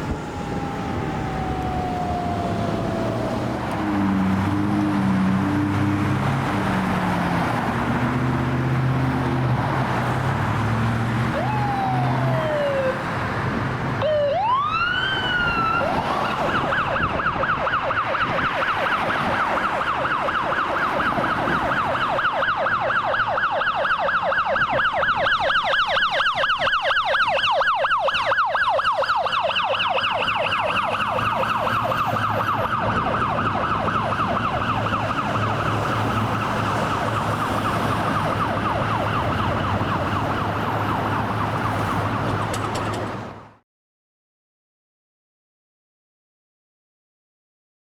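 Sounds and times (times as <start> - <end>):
truck engine rumbling: 0.0 - 17.0, 30.1 - 43.6
fire truck siren: 0.0 - 43.6.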